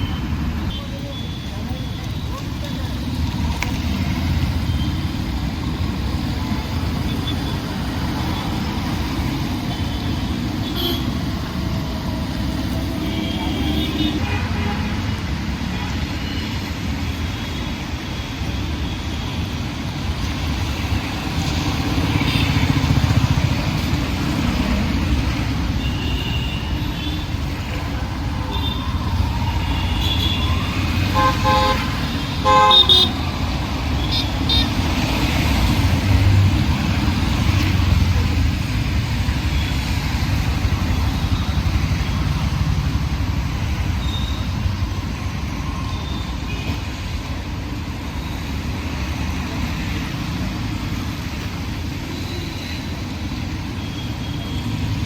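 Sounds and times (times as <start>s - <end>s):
road traffic engines running: 0.0s - 55.0s
vehicle horn honking: 31.2s - 33.1s.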